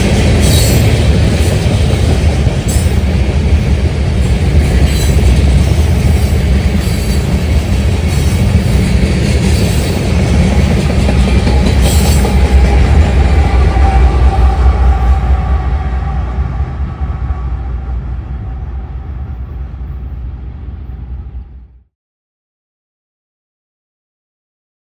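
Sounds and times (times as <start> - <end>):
train wheels screeching: 0.0 - 21.2
train rumbling on rails: 0.0 - 21.9.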